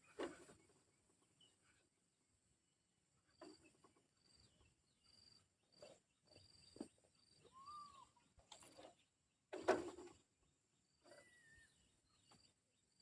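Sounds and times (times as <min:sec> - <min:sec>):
faint high bird chirps: 0:04.2 - 0:08.3, 0:10.9 - 0:13.0.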